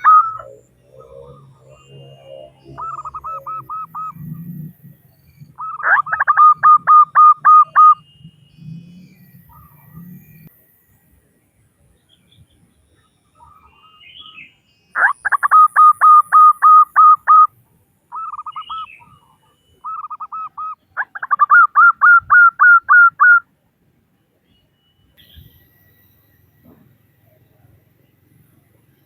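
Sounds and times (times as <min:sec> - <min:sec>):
dove cooing: 0:00.0 - 0:04.7, 0:05.6 - 0:08.0, 0:15.0 - 0:17.5, 0:18.1 - 0:23.4.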